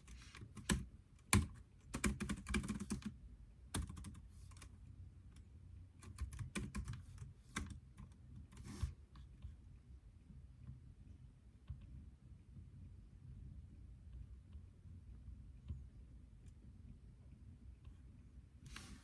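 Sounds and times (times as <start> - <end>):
typing on computer keyboard: 0.1 - 3.2, 3.8 - 4.7, 6.0 - 8.7.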